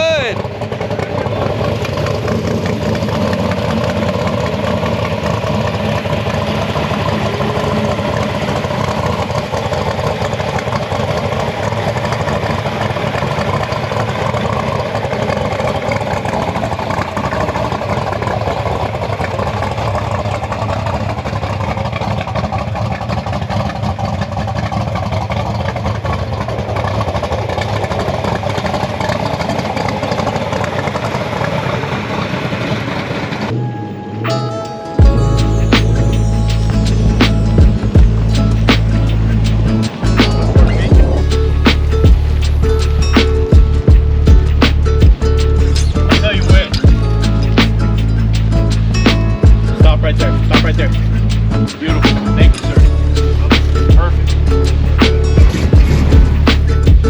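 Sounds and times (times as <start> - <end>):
car engine rumbling: 0.0 - 57.0.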